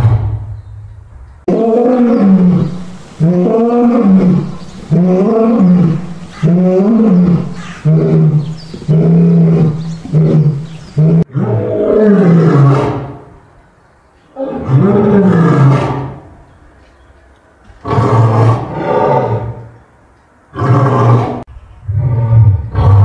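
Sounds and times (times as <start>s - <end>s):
lion roaring: 1.5s - 13.3s, 14.3s - 16.3s, 17.8s - 19.7s, 20.5s - 23.0s.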